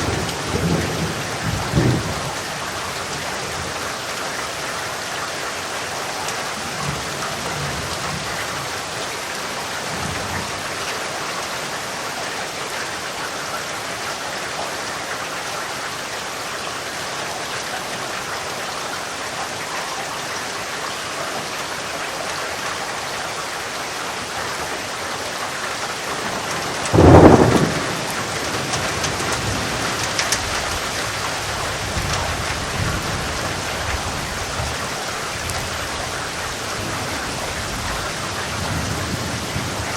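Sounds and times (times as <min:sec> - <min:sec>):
loud thunderclap: 0:00.0 - 0:02.5, 0:26.1 - 0:34.8
rumbling thunder: 0:00.0 - 0:03.8, 0:26.1 - 0:39.9
steady rain: 0:00.0 - 0:39.9.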